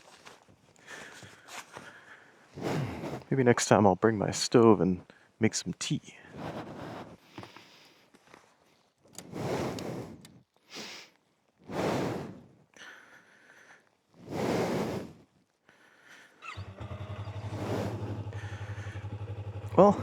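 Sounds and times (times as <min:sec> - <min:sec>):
motorcycle engine starting and idling: 0:16.4 - 0:20.0.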